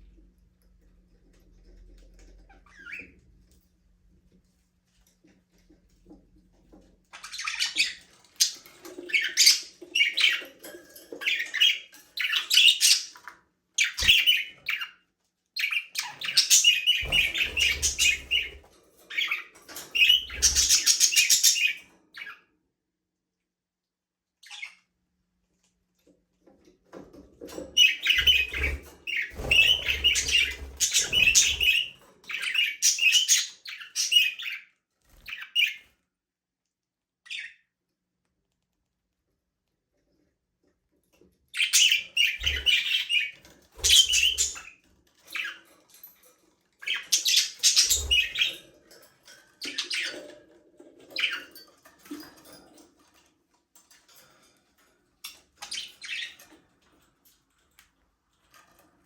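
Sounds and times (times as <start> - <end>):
budgerigars chirping: 15.6 - 19.4, 20.0 - 22.4, 27.8 - 34.6, 41.6 - 44.7, 46.8 - 48.6.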